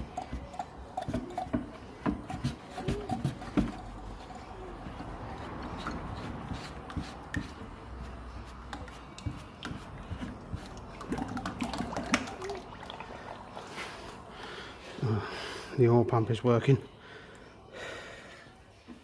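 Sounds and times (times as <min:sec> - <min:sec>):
oil trickling and dripping: 0:08.6 - 0:14.4.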